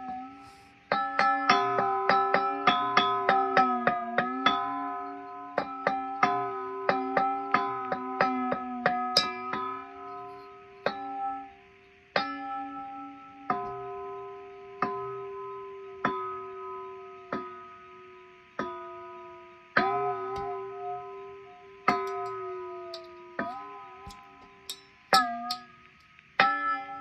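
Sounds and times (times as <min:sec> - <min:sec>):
metal bowls ringing when struck: 0:21.9 - 0:25.9.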